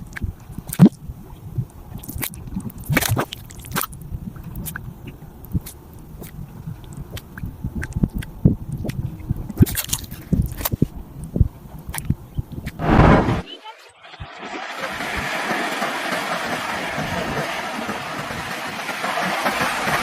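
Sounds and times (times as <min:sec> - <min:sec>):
mud volcano bubbling: 0:00.0 - 0:13.5.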